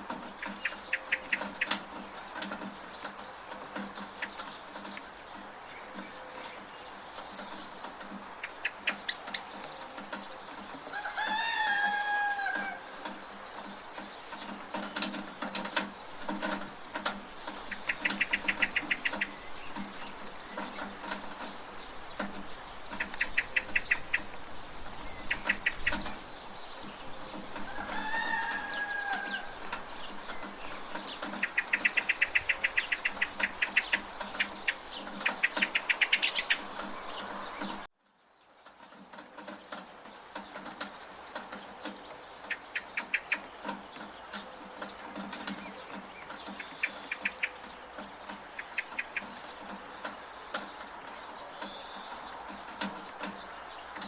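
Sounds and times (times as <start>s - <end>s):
gutter dripping: 0.0s - 37.9s
birds chattering trills: 0.0s - 54.0s
rain: 0.0s - 54.0s
chicken calling: 10.8s - 13.3s, 27.6s - 30.6s.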